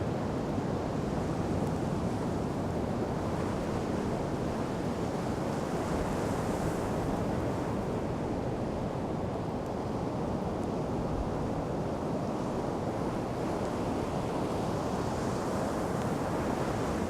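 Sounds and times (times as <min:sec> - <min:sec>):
surf washing on sand: 0:00.0 - 0:17.0.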